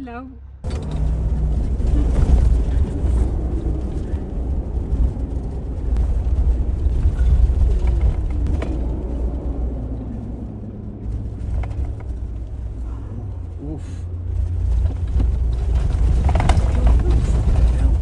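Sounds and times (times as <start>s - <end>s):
vehicle rumbling off-road: 0.0s - 18.0s.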